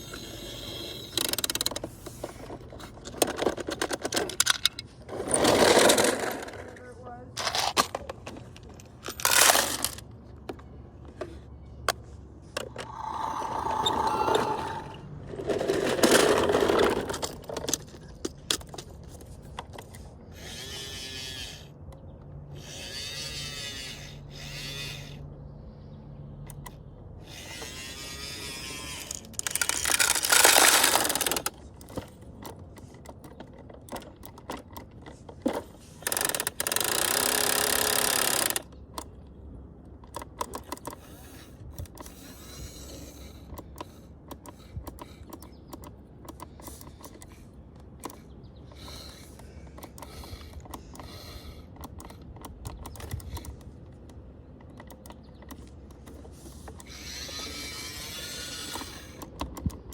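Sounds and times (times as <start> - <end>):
toy truck whirring: 0.0 - 6.8, 7.4 - 10.1, 12.6 - 21.9, 22.5 - 25.4, 26.5 - 39.1, 40.0 - 59.9
plastic toy clicks and knocks: 1.1 - 6.6, 7.4 - 10.0, 27.4 - 39.1, 43.5 - 59.9.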